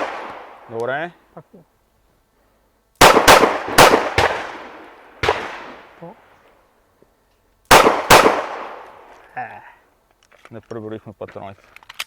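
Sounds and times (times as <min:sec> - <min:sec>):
pistol shots: 0:00.0 - 0:00.7, 0:03.0 - 0:05.9, 0:07.7 - 0:09.1.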